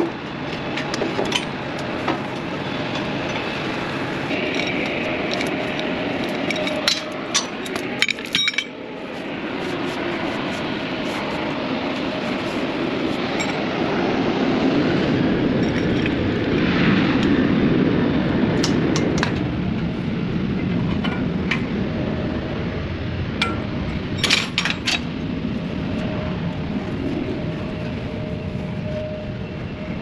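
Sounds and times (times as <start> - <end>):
low machinery rumble: 0.0 - 30.0
metallic clinks of tools: 4.4 - 8.8.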